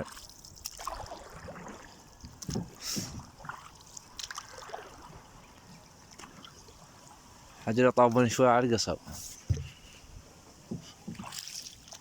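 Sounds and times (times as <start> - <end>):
soft water splashes: 0.0 - 12.0
light knocks against boat hull: 2.2 - 3.3, 9.4 - 9.8, 10.6 - 11.5.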